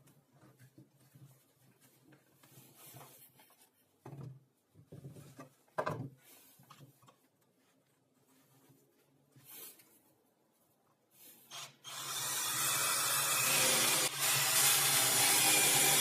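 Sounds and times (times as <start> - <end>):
soft knocks and scrapes of objects: 0.0 - 10.1.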